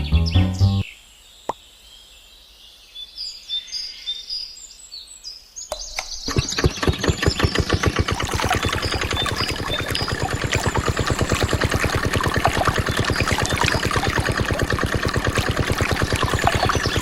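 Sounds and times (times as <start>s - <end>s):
small birds chirping: 3.0s - 17.0s
diesel water pump engine running: 6.3s - 17.0s.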